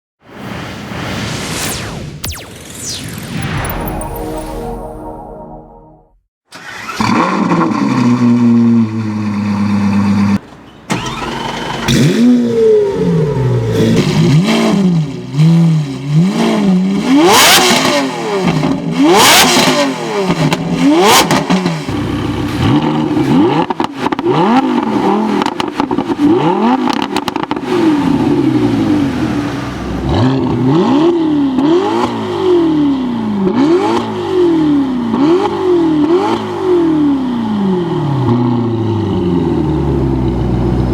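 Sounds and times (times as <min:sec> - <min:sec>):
sports car engines accelerating: 0:11.1 - 0:40.9
cars rushing past: 0:27.6 - 0:31.5.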